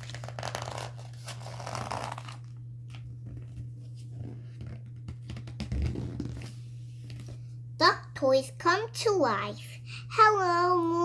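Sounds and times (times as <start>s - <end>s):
paper pages rustling: 0.0s - 5.6s
steady low hum: 0.0s - 11.0s.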